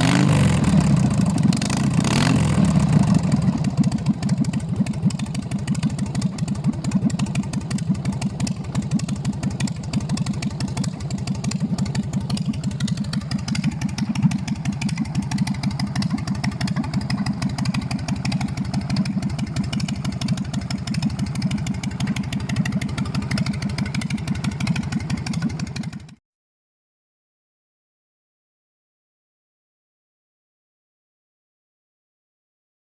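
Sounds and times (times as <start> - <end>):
motorcycle engine running: 0.0 - 26.2.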